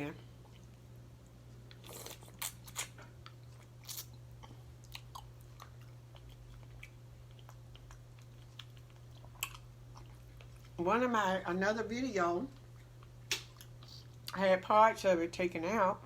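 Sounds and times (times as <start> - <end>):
low steady hum: 0.0 - 16.0
person chewing food: 0.3 - 10.8, 12.5 - 14.4.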